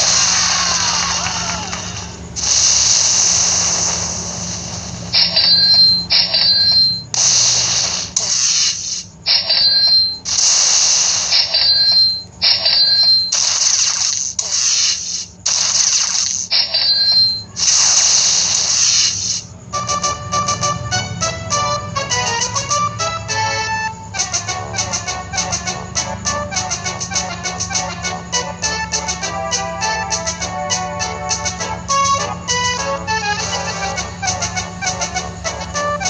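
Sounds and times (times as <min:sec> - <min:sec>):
slot machine hissing whooshes: 0:00.0 - 0:36.0
electronic beeps: 0:05.1 - 0:19.5
high chiming dings: 0:05.2 - 0:07.1, 0:09.3 - 0:10.2, 0:11.4 - 0:13.4, 0:16.5 - 0:17.5.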